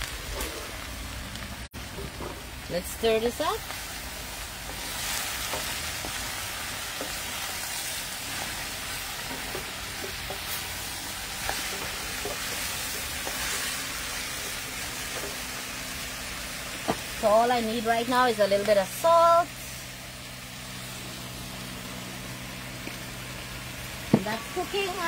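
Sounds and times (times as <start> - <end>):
stir-fry sizzling in oil: 0.0 - 25.0.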